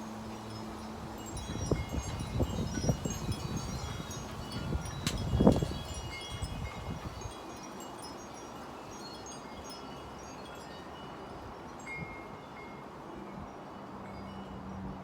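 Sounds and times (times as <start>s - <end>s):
wind buffeting microphone: 0.4s - 7.5s.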